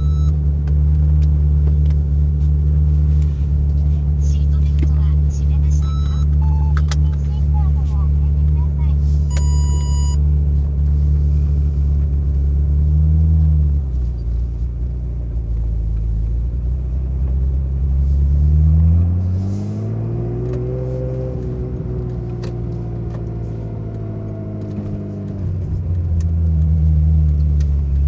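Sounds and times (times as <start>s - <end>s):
short electronic beep: 0.0s - 0.4s, 5.6s - 7.8s, 9.3s - 10.2s
car engine at low revs: 0.0s - 28.0s.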